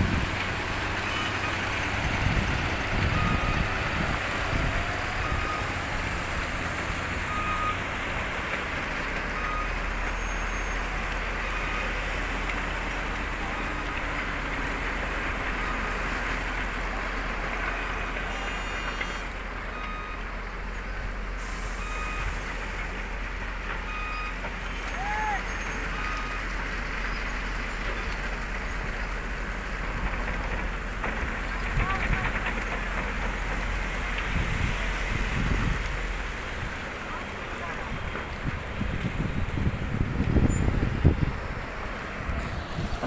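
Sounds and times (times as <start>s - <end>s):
diesel truck engines rumbling: 0.0s - 43.0s
reversing alarm beeps: 3.1s - 3.7s, 7.2s - 8.0s, 18.3s - 20.3s, 21.6s - 22.5s, 23.9s - 24.4s, 25.9s - 26.5s.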